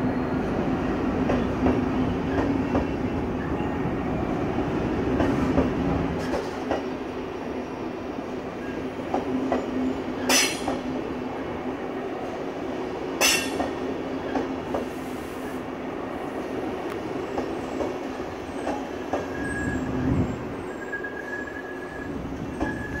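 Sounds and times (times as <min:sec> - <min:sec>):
high wheel squeal: 0:19.2 - 0:23.0.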